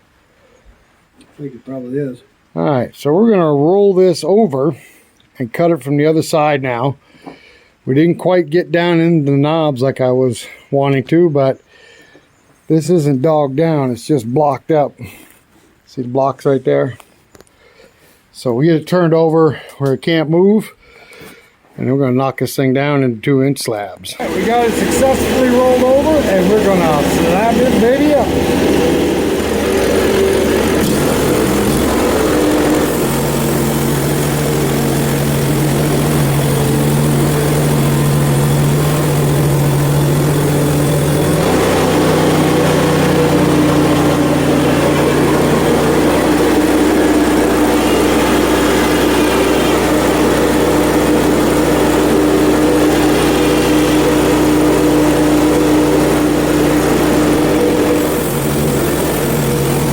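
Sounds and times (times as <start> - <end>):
bandsaw mill cutting log: 24.2 - 59.9.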